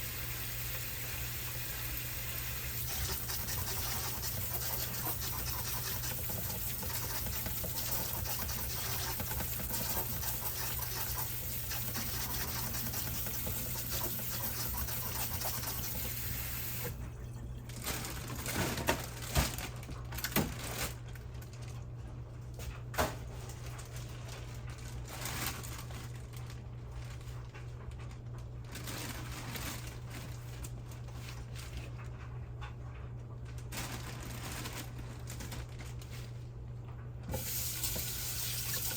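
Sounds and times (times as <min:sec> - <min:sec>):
water running from tap: 0:00.0 - 0:17.0, 0:37.3 - 0:38.9.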